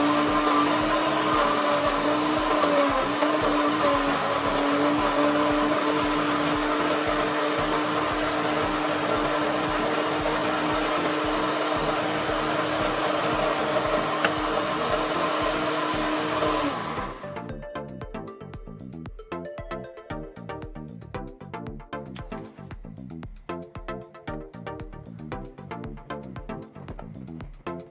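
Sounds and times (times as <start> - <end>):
small appliance motor humming: 0.0 - 17.5.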